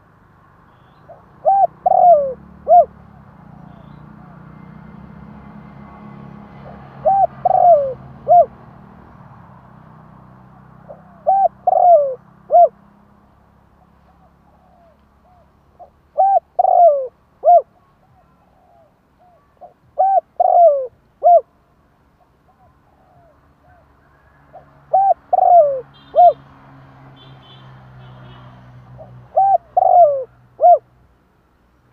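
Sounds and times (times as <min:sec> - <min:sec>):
dove cooing: 0:01.1 - 0:04.6, 0:06.7 - 0:08.6, 0:10.8 - 0:12.8, 0:14.1 - 0:21.5, 0:22.4 - 0:26.4, 0:29.0 - 0:30.9.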